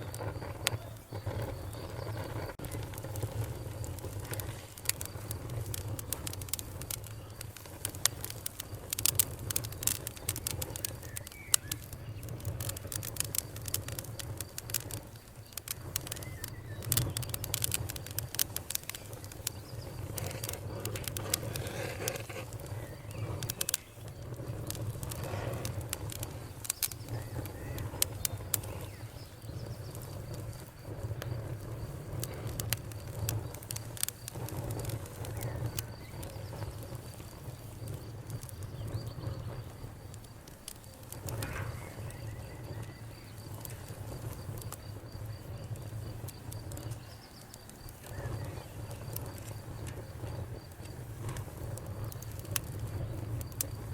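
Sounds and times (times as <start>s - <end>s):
fire crackling: 0.0s - 53.9s
sharp pops and snaps: 0.0s - 53.9s.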